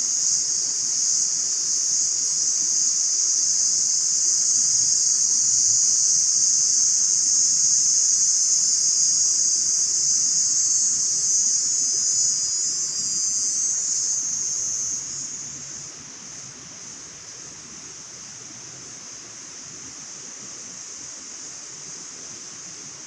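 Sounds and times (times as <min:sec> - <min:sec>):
insects buzzing trill: 0:00.0 - 0:17.4.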